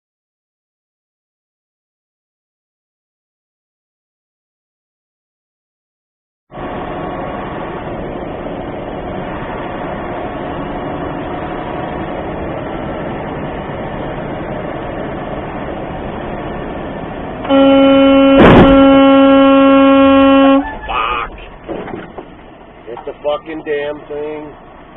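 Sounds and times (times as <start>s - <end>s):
truck engine and road noise: 6.5s - 24.9s
truck air horn blasting: 17.4s - 20.9s.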